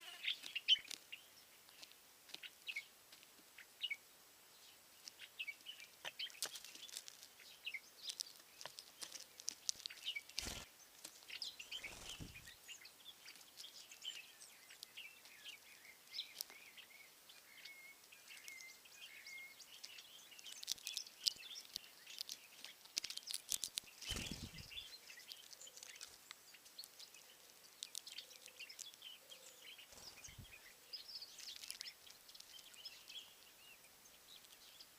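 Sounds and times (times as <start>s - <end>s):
small birds chirping and singing: 0.0s - 34.9s.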